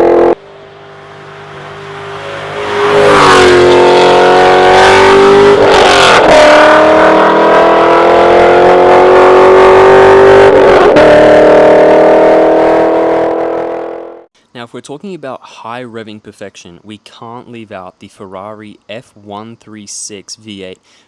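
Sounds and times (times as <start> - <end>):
car engine revving hard: 0.0 - 14.2.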